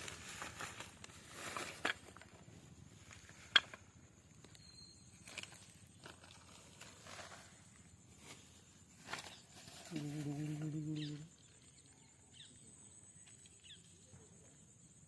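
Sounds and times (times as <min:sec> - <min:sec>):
rustling and scuffing handling noise: 0:00.0 - 0:04.5, 0:05.1 - 0:10.5.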